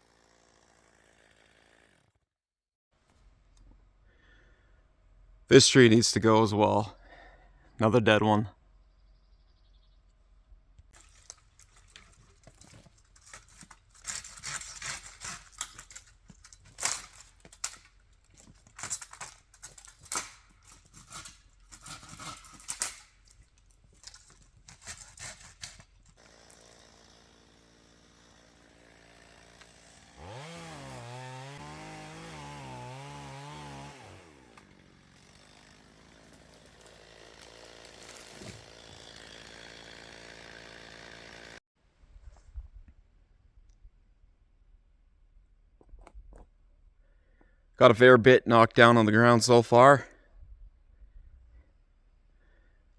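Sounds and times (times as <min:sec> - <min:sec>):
chainsaw engine running: 0:00.0 - 0:02.1, 0:11.0 - 0:41.6
sharp crunches and knocks: 0:10.9 - 0:26.3, 0:36.2 - 0:39.2.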